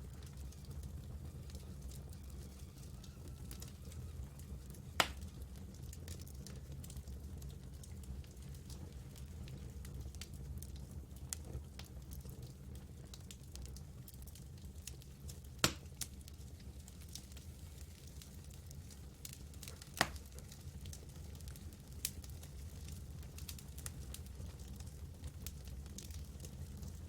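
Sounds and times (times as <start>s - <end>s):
campfire crackling: 0.0s - 27.0s
low fire rumble: 0.0s - 27.0s
fire pops: 4.7s - 7.0s, 15.6s - 17.4s, 18.0s - 27.0s.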